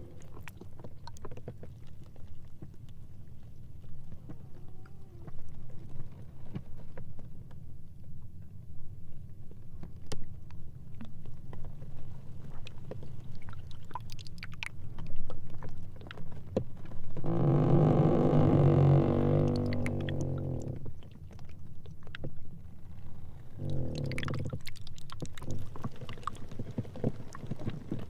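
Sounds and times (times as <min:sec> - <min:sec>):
ice groaning squeal: 0:17.2 - 0:20.8.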